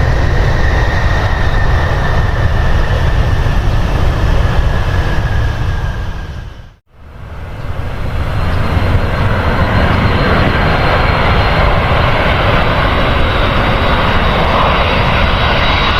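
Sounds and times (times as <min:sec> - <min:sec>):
jet engines rushing with whine: 0:00.0 - 0:15.9.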